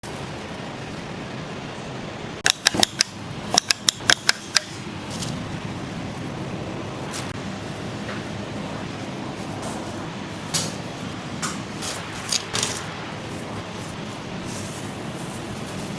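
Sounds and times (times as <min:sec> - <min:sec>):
steady background noise: 0:00.0 - 0:15.9
sharp clicks: 0:02.4 - 0:04.8.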